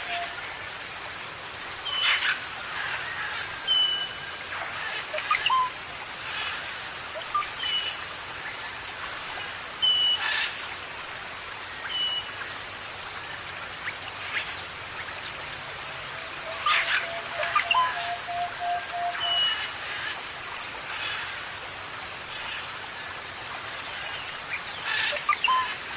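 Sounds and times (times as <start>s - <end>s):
rain-like hiss: 0.0s - 25.9s
birds whistling and chirping: 5.2s - 5.7s, 17.0s - 19.6s, 25.1s - 25.7s.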